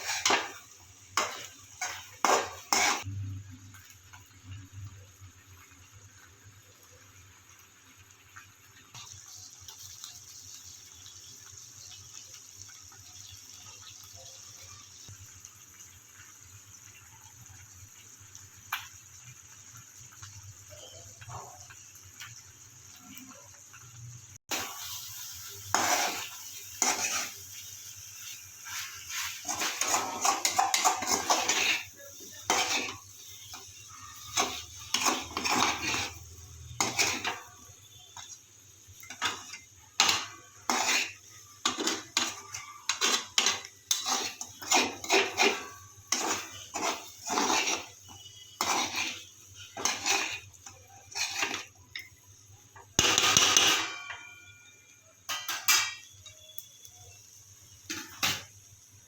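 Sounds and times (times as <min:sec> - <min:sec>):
utensil scraping cooking pan: 0:00.0 - 0:03.2, 0:24.5 - 0:52.2, 0:52.8 - 0:54.7.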